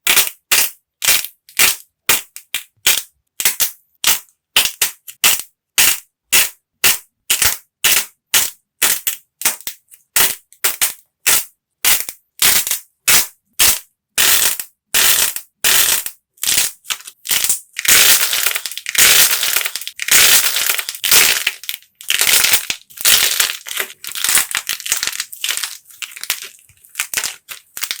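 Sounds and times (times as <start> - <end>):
clay cracking and crunching: 16.8 - 28.0.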